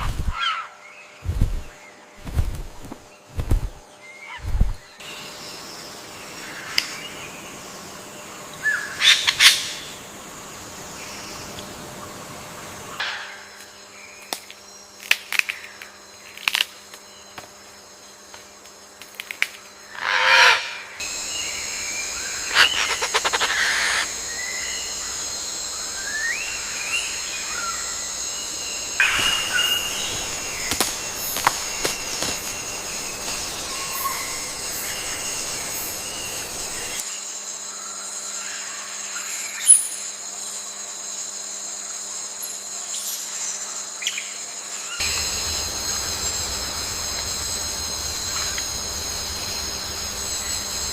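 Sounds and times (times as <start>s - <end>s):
high insect drone: 0.0s - 50.9s
bird chirps and calls: 22.3s - 24.1s
loud falling bird call: 22.3s - 24.1s.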